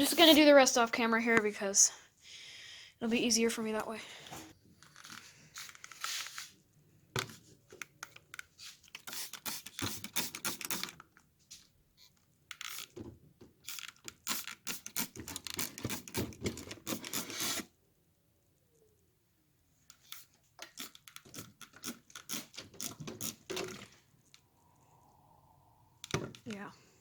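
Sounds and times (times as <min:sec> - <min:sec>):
scrubbing air conditioner coil: 0:20.0 - 0:23.8.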